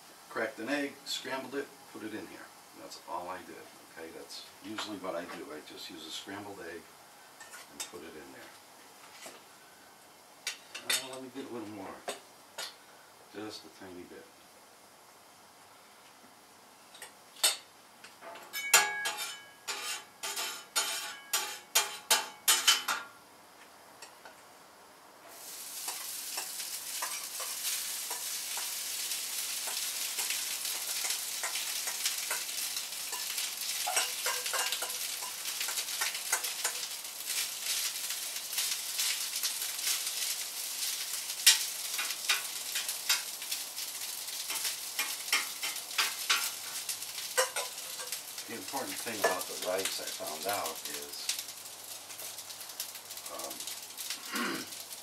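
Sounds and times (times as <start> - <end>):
rice sizzling in a pan: 0.0 - 55.0
metal spatula scraping pan: 18.8 - 22.9.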